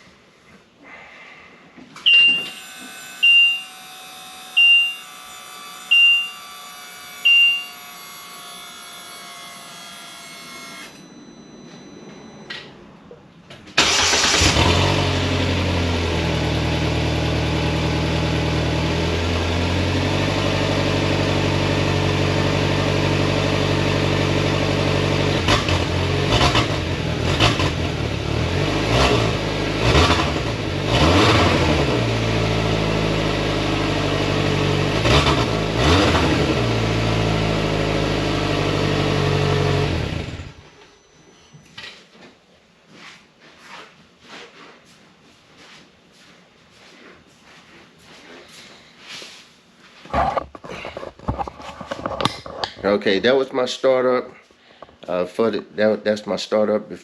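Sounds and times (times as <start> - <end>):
short electronic beeps: 2.0 - 2.6, 3.2 - 3.8, 4.6 - 5.2, 5.9 - 6.5, 7.2 - 7.8, 10.9 - 13.1, 40.6 - 41.8
engine throttle blips: 10.9 - 21.5, 24.1 - 41.5
engine cranking and idling: 13.5 - 17.7, 34.9 - 40.8.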